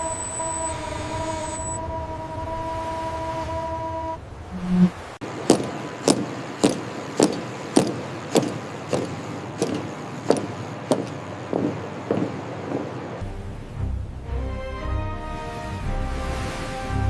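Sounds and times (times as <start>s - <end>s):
sharp knocks: 5.4s - 13.2s.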